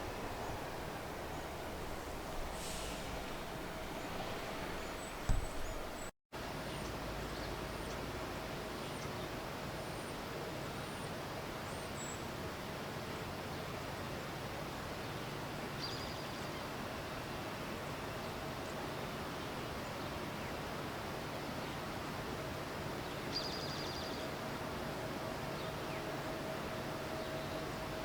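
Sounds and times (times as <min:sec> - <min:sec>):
bump on microphone: 0:00.0 - 0:06.1
faint high bird chirps: 0:00.0 - 0:06.1
steady background hiss: 0:00.0 - 0:06.1.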